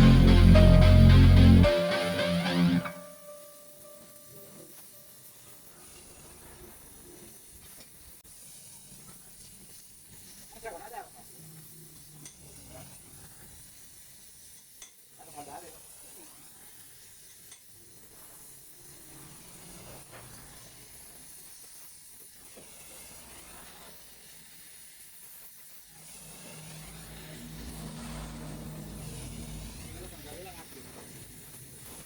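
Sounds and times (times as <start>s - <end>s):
low hum: 0.0s - 3.4s, 26.7s - 30.3s
welding torch hissing: 3.2s - 32.0s.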